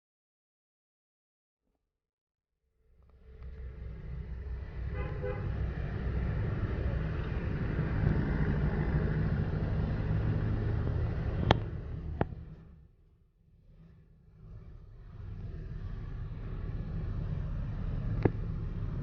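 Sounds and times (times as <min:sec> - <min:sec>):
diesel train passing: 0:03.2 - 0:12.8, 0:13.6 - 0:19.0
train horn blast: 0:04.3 - 0:08.0.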